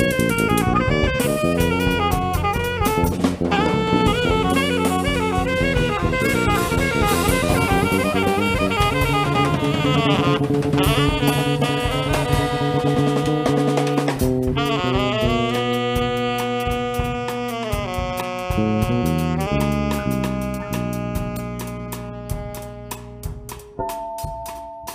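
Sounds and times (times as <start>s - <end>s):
bass notes: 0.0s - 24.9s
drum kit: 0.0s - 24.9s
saxophone melody: 0.0s - 24.9s.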